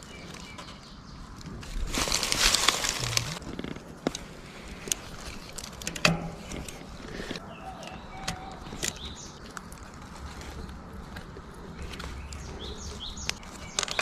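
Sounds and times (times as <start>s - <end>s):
birds chirping: 0.0s - 1.4s, 6.0s - 14.0s
sharp clicks and knocks: 5.7s - 6.9s.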